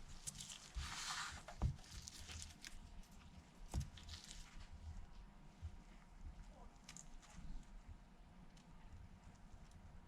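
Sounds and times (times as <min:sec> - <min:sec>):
soft rustle: 0:00.0 - 0:08.0.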